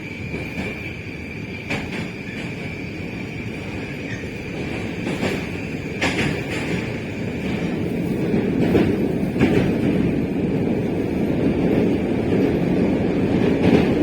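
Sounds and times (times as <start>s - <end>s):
train wheels rumbling on rail: 0.0s - 14.0s
wheels clacking over rail joints: 4.0s - 10.9s.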